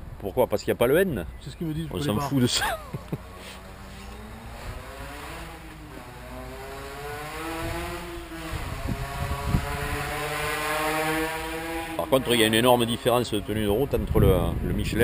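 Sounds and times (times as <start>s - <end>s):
car engine droning: 3.0s - 13.9s.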